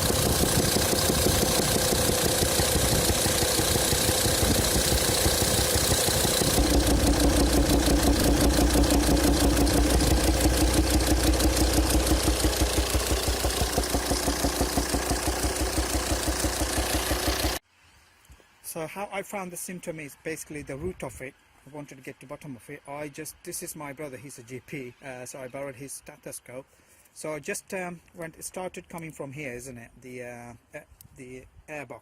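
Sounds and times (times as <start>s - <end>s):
diesel engine idling: 0.0s - 17.6s
rapid popping from intake: 0.0s - 17.6s.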